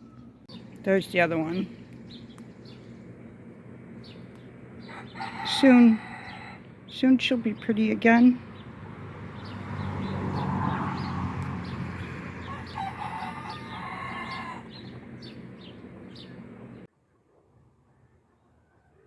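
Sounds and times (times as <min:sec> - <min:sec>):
chickens calling: 0:04.1 - 0:06.8, 0:08.5 - 0:16.9.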